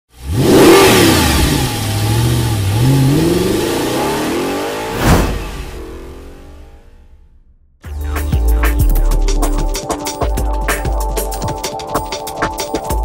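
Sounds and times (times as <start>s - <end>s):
race car engine revving: 0.1s - 7.4s
sharp hit: 4.7s - 7.1s.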